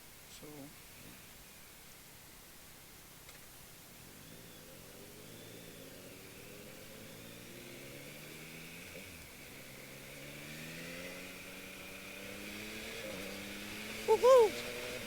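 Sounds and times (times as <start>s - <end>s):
motorcycle engine revving: 3.9s - 15.0s.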